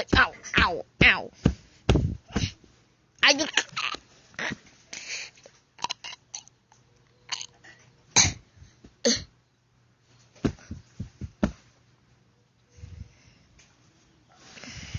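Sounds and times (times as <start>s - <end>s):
dog coughing or snorting: 8.2s - 8.4s.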